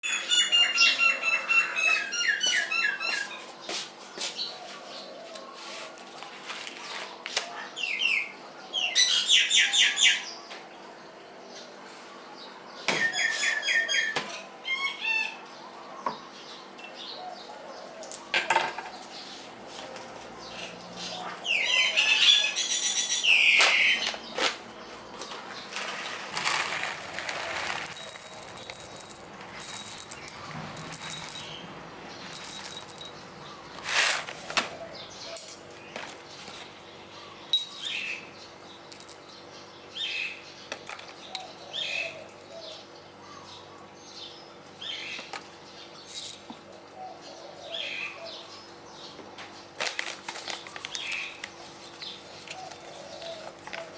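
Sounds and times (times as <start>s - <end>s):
bird chirps and trills: 0.0s - 4.7s, 12.4s - 18.1s, 20.4s - 26.3s, 34.7s - 49.8s.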